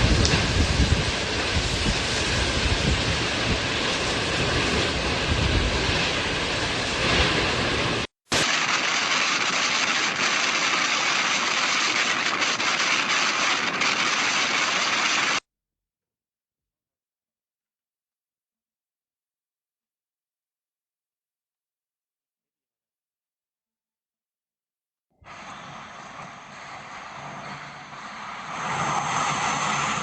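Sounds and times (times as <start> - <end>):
storm wind buffeting microphone: 0.0 - 8.1.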